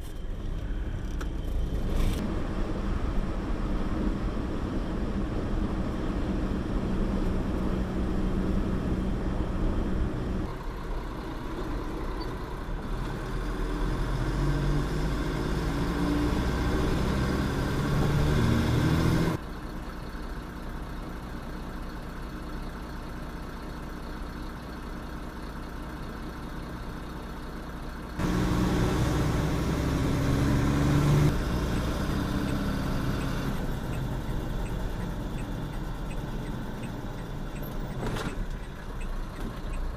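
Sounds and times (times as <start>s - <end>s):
truck engine revving: 12.8s - 19.4s, 28.2s - 39.4s.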